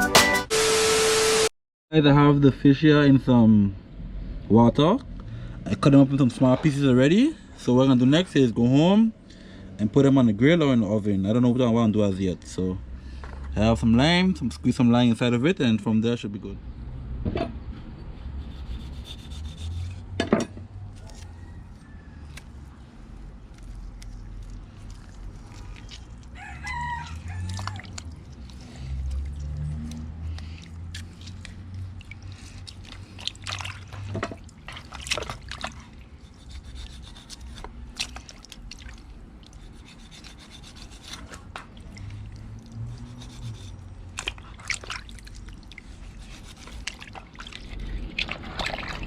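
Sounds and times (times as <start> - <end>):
hands handling fish: 20.9 - 49.0.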